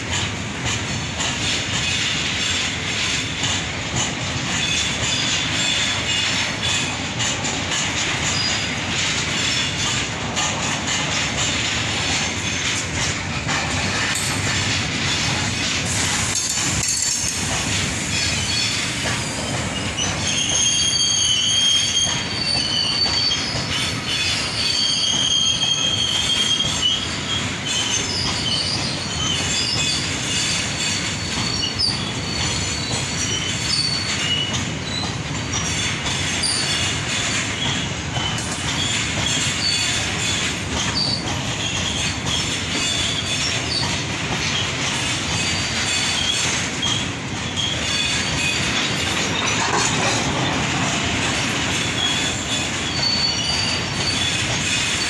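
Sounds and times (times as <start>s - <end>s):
freight train rumbling past: 0.0s - 55.0s
high-pitched wheel squeal: 19.7s - 36.9s, 51.8s - 55.0s.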